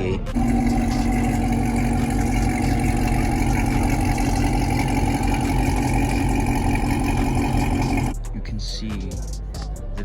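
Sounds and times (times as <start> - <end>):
car engine idling: 0.3 - 8.2.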